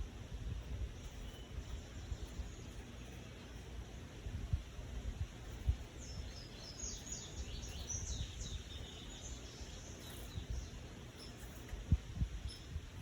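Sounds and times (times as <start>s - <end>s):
bird chirping: 0.9s - 3.8s, 5.4s - 11.8s, 12.4s - 12.8s.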